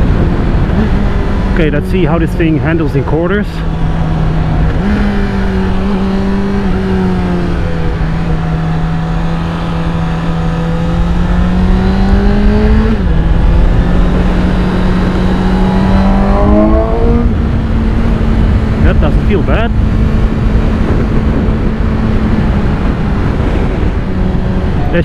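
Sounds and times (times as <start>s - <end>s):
motorcycle engine revving: 0.0s - 25.0s
wind noise: 0.0s - 25.0s.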